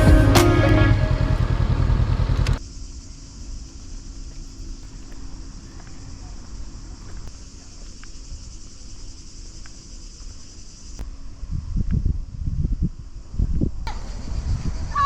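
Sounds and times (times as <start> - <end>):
low rumble: 0.0 - 2.6
insects chirring: 1.4 - 15.0.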